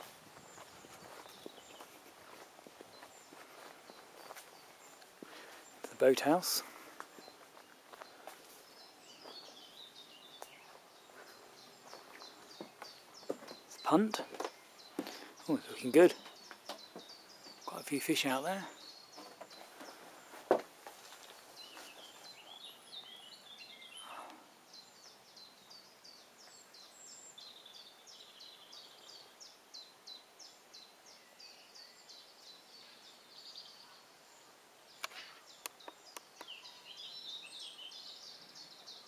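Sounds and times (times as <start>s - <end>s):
birds twittering: 0.0s - 39.0s.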